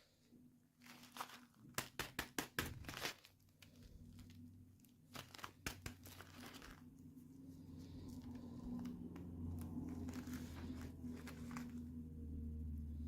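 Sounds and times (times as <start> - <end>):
toy packaging crinkling: 0.8 - 2.0, 2.7 - 7.0, 9.5 - 11.9.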